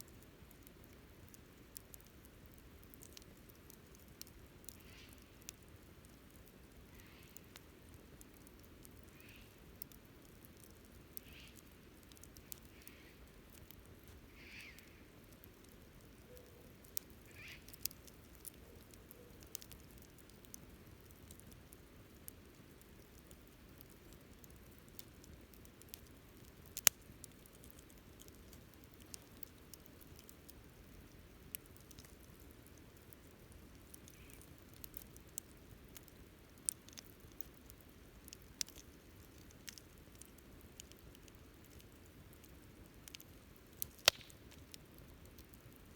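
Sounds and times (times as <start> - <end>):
wood fire crackling: 0.0 - 45.9
sharp pop of fire: 43.9 - 44.5.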